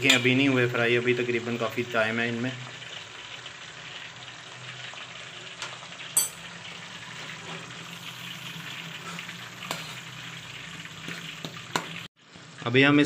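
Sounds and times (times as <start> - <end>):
hot oil sizzling: 0.0 - 13.0
metal ladle stirring in a pan: 8.6 - 12.1.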